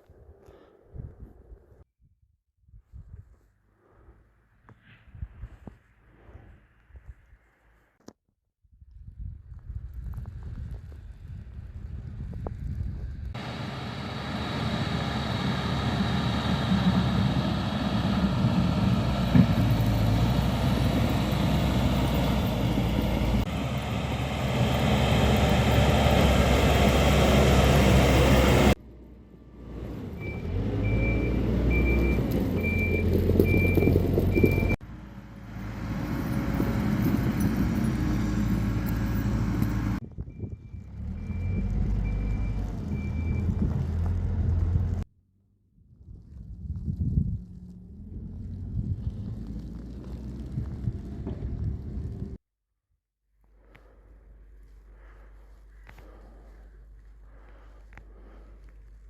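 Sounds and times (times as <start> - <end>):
heavy diesel engines running: 13.3 - 40.0
reversing alarm beeping: 30.2 - 34.8.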